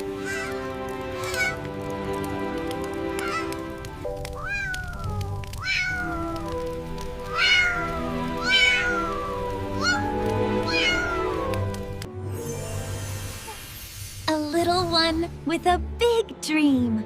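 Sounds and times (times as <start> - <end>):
gentle background music: 0.0 - 17.0
kitten meowing: 4.3 - 11.8.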